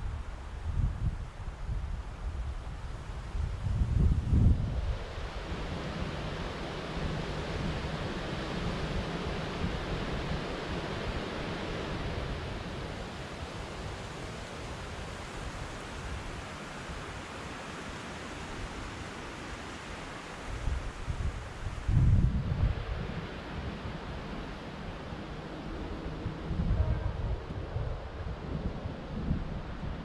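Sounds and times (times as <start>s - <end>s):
steady white noise hiss: 0.0s - 30.0s.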